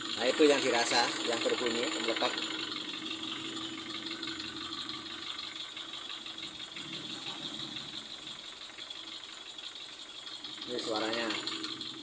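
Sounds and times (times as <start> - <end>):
car engine idling: 0.0 - 12.0
fast metallic ticking: 0.0 - 12.0.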